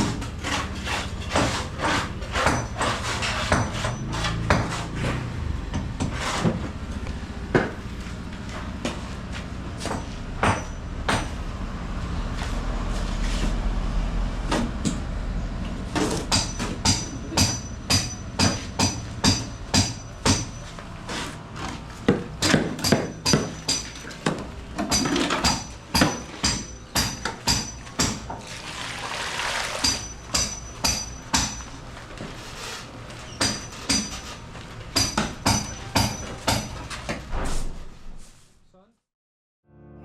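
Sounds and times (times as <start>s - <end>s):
hammer blows with metallic ring: 2.4s - 4.8s, 9.8s - 11.4s, 16.3s - 20.8s, 22.4s - 24.2s, 24.9s - 28.2s, 29.8s - 31.8s, 33.3s - 34.3s, 35.0s - 36.9s.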